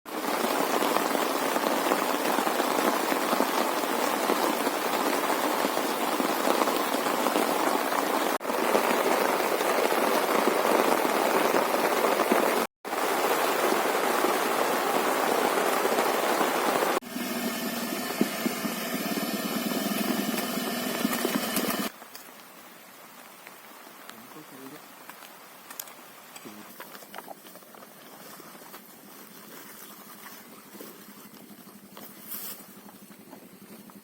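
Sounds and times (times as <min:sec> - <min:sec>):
heavy rain: 0:00.1 - 0:21.9.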